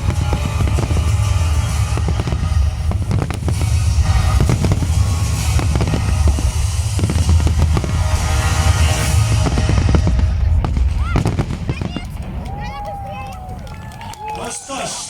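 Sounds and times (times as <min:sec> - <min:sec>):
loud music with heavy bass: 0:00.0 - 0:12.0
fireworks bangs and crackling: 0:00.0 - 0:15.0.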